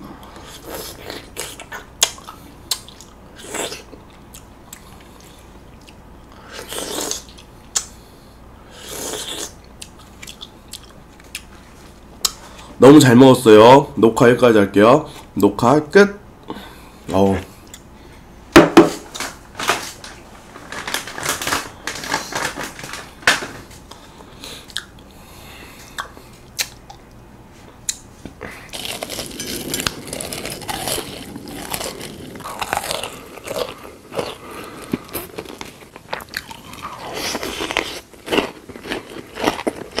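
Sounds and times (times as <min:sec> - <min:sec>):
chewing and crunchy bites: 0:27.9 - 0:40.0.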